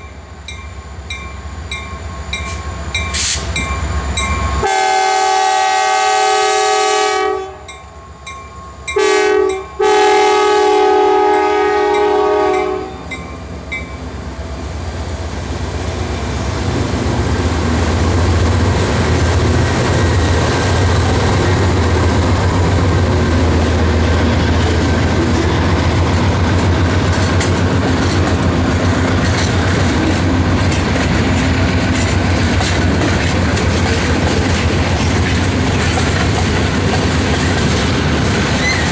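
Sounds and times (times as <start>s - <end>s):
locomotive engine drone: 0.0s - 38.9s
locomotive air horn blasts: 4.6s - 7.7s, 9.0s - 13.1s
train wheels clattering on rails: 16.2s - 38.9s.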